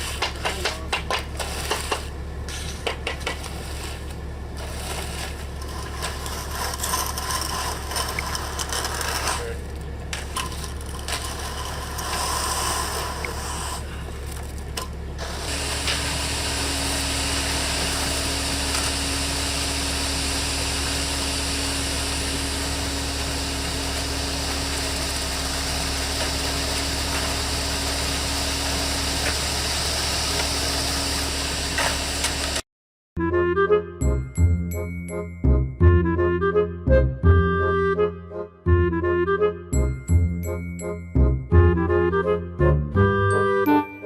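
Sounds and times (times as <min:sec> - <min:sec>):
scraping and rubbing: 0:00.0 - 0:15.9.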